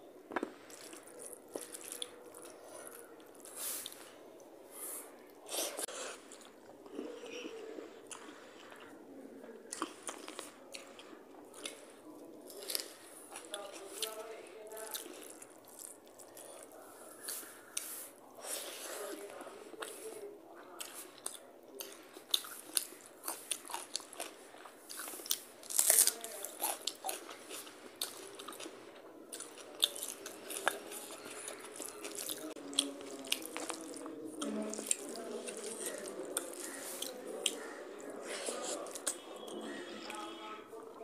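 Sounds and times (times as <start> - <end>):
food crunch: 0.3 - 4.0, 20.8 - 37.8
wet chewing and biting: 0.3 - 4.0, 20.8 - 37.7.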